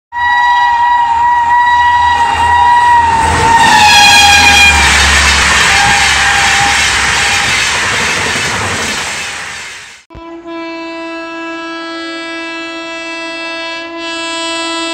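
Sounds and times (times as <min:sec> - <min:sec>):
train horn blast: 0:00.1 - 0:07.7, 0:10.1 - 0:14.9
train coaches rushing past: 0:01.0 - 0:10.0.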